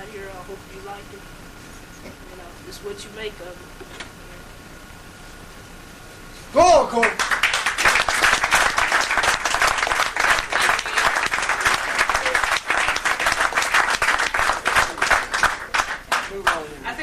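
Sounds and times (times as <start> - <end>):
people applauding and cheering: 6.7 - 16.7.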